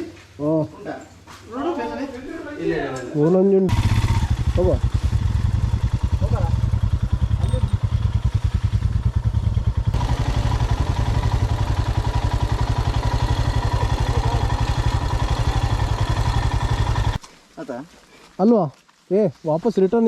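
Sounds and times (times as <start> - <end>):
motorcycle engine running: 3.7 - 17.2.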